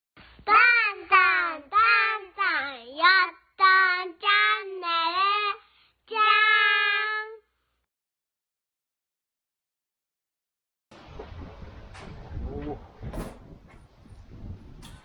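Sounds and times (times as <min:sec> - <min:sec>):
child singing: 0:00.4 - 0:07.5.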